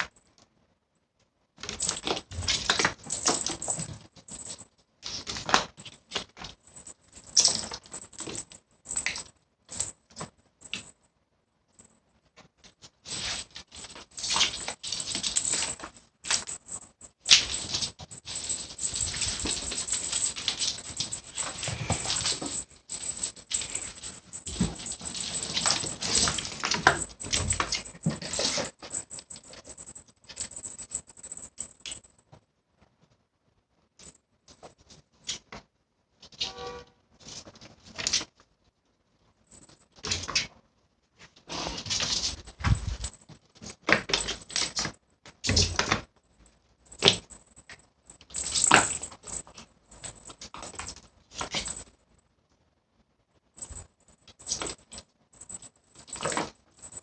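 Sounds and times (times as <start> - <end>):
cats scuffling: 1.6 - 10.9, 11.8 - 32.3, 39.5 - 46.2, 46.8 - 52.0, 53.6 - 57.0.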